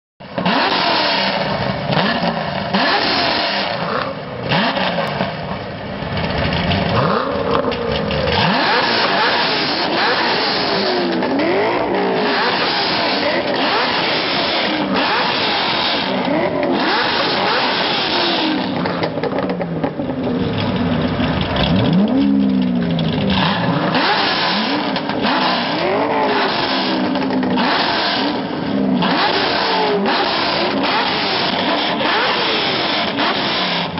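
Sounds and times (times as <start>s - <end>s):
car engines revving: 0.2s - 33.9s.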